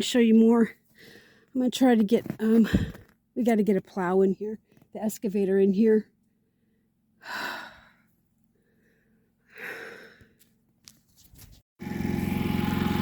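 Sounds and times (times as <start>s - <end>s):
person breathing heavily: 8.6s - 10.4s
engine running: 11.8s - 13.0s.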